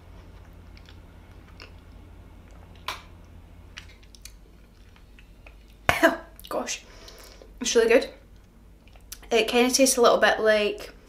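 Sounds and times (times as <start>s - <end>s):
person chewing soft food: 0.0s - 7.5s, 8.3s - 9.3s.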